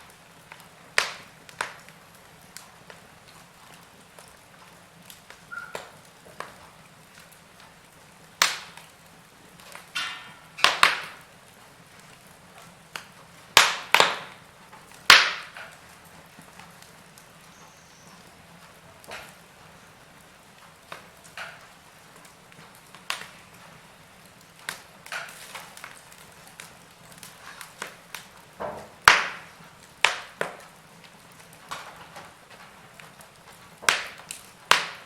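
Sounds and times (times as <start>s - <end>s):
logs crackling in fireplace: 0.0s - 35.0s.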